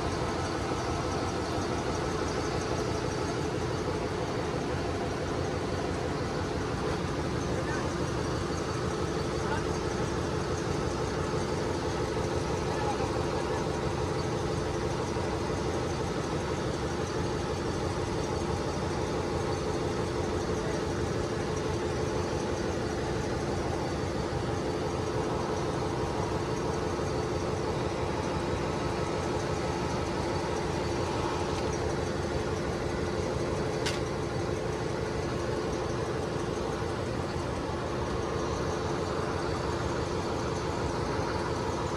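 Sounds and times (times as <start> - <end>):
engine-room machinery drone: 0.0 - 41.9
sharp click: 33.8 - 34.2.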